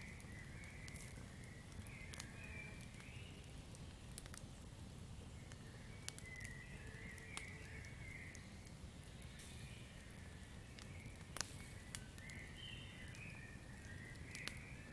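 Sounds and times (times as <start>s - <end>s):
campfire crackling: 0.0s - 14.9s
faint chirping calls: 5.4s - 14.9s.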